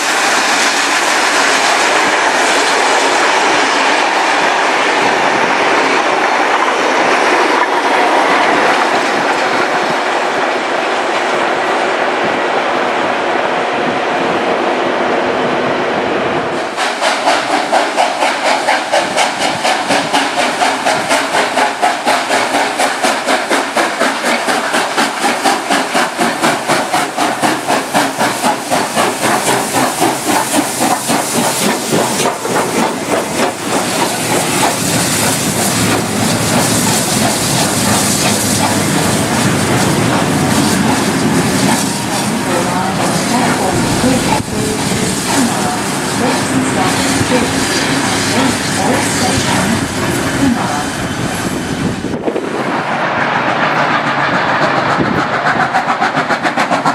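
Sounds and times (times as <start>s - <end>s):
steam hiss: 0.0s - 4.5s, 16.6s - 56.9s
steam locomotive exhaust beats: 16.3s - 56.9s.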